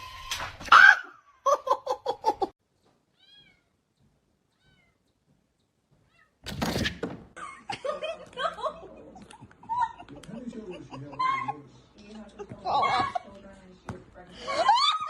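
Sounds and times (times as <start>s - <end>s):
cat meowing: 3.1s - 3.8s, 4.5s - 5.0s, 6.0s - 6.4s.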